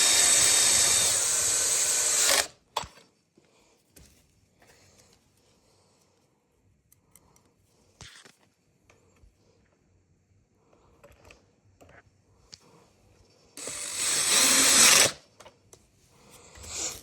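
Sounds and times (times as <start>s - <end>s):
small power tool motor: 0.0s - 2.6s, 13.6s - 15.2s, 16.7s - 17.0s.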